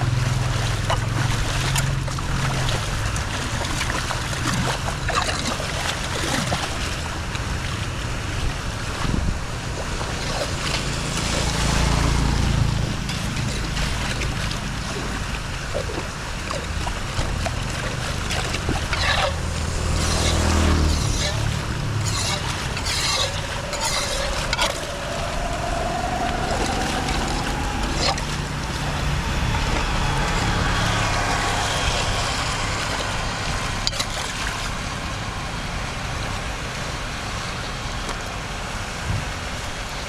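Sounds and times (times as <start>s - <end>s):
floodwater rushing into drain: 0.0s - 40.0s
low rumble: 7.3s - 37.5s
faint clicks and splashes: 9.7s - 35.2s.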